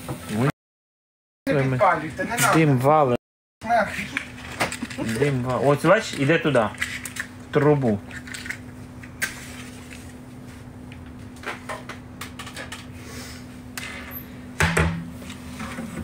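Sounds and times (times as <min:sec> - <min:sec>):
objects clicking and knocking: 0:04.1 - 0:10.1.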